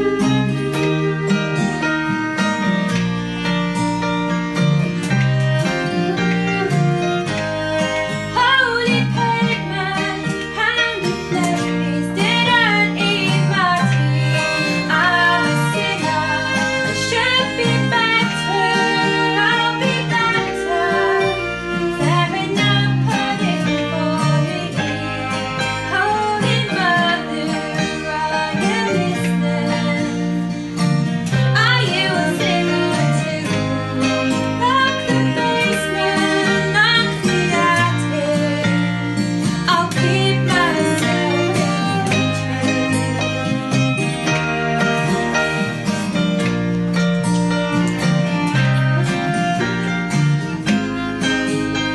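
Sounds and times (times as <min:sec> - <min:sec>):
bass: 0:00.0 - 0:51.9
piano: 0:00.0 - 0:51.9
plucked strings: 0:00.0 - 0:51.9
viola: 0:00.0 - 0:51.9.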